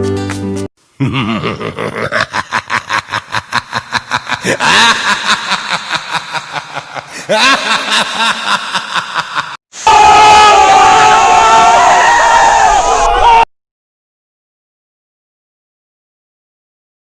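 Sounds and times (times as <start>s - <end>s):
snickering laughter: 1.0s - 9.6s.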